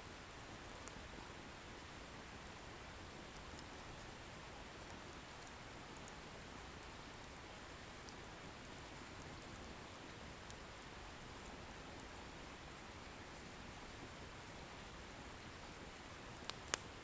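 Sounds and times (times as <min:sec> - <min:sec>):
firewood crackling and popping: 0:00.4 - 0:01.2, 0:01.8 - 0:03.9, 0:15.8 - 0:17.0.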